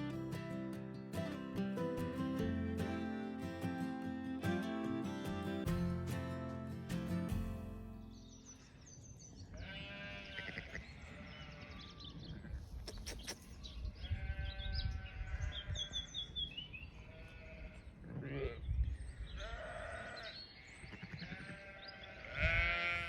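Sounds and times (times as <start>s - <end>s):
guitar music: 0.0s - 8.6s
sheep bleating: 1.9s - 6.6s, 9.5s - 12.0s, 14.0s - 16.0s, 17.1s - 18.6s, 19.4s - 23.0s
small birds chirping: 6.9s - 22.4s.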